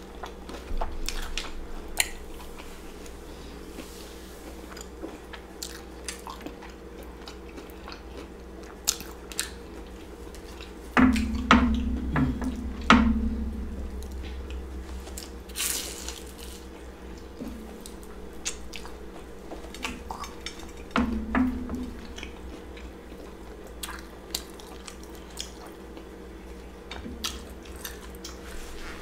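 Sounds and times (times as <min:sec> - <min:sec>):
crunchy chewing: 0:00.0 - 0:03.2, 0:03.8 - 0:10.9, 0:14.4 - 0:20.9, 0:22.2 - 0:28.6.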